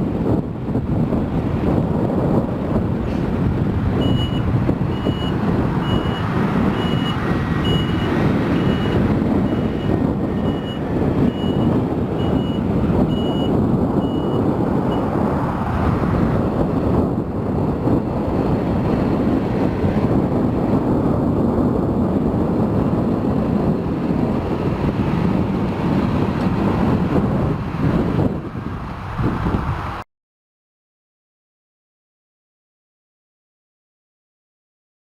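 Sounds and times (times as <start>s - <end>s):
truck engine running: 0.1s - 15.6s
truck reversing alarm beeping: 4.0s - 15.1s.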